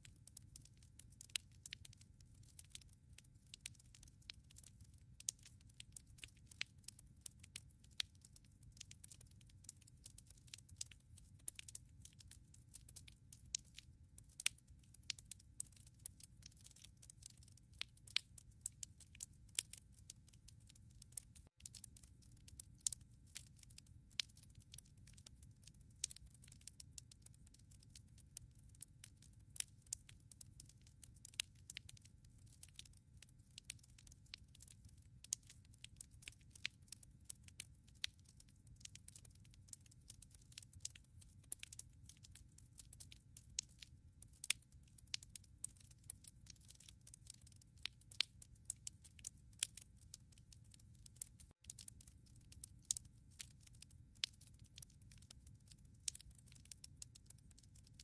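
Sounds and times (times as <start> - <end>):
wood fire crackling: 0.3 - 53.6
fire pops and snaps: 0.3 - 58.0.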